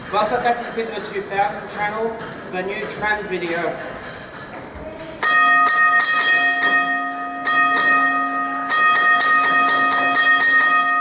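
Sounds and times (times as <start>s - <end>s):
tram gong ringing: 5.2s - 11.0s.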